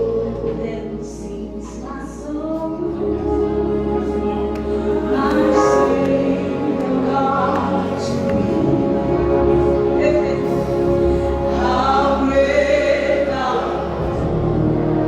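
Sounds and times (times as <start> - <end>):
choir singing with accompaniment: 0.0 - 15.0.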